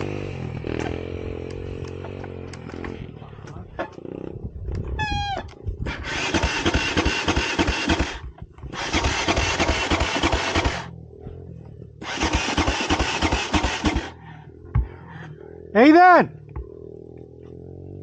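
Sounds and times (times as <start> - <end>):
dirt bike engine cranking: 5.8 - 10.9, 12.0 - 14.2.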